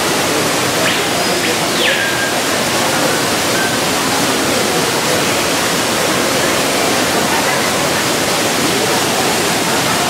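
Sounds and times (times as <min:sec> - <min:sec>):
waterfall rushing: 0:00.0 - 0:10.0
bird whistle call: 0:00.8 - 0:02.4.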